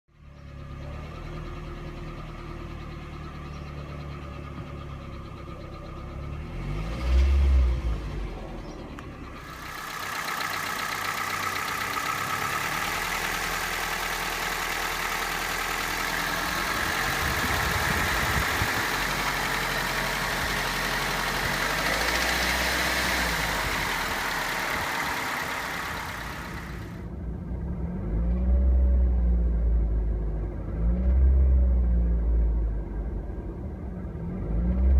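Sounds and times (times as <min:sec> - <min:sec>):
car engine running: 0:00.2 - 0:28.1.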